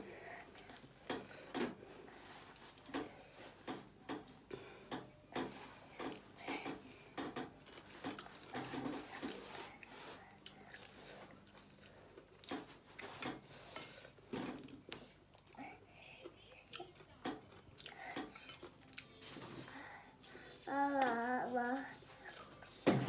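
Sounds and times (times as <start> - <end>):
person chewing: 7.2 - 15.6, 16.2 - 19.6.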